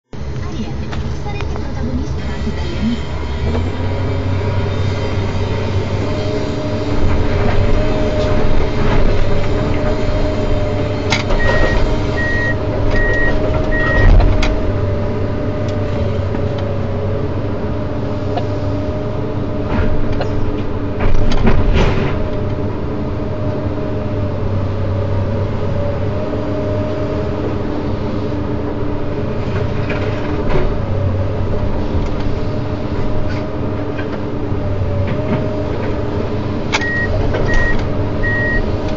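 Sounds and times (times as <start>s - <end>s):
excavator running under load: 0.1s - 38.9s
high beeps: 11.4s - 14.1s, 36.8s - 38.6s.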